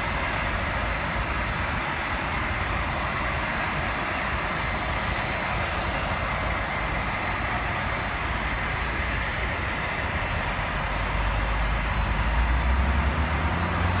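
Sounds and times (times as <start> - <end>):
jet engine rushing with high whine: 0.0 - 14.0
deep engine rumble: 10.8 - 14.0.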